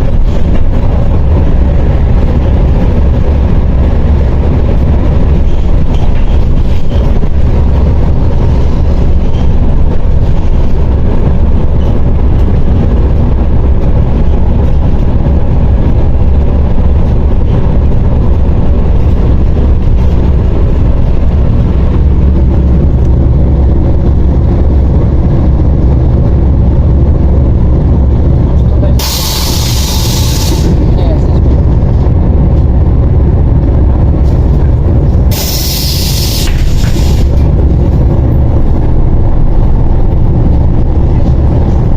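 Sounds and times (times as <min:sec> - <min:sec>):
bus diesel engine droning: 0:00.0 - 0:41.9
road noise: 0:00.0 - 0:41.9.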